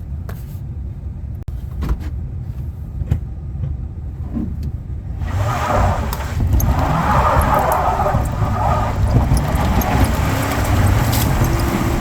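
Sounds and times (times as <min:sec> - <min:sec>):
truck engine rumbling: 0:04.0 - 0:12.0.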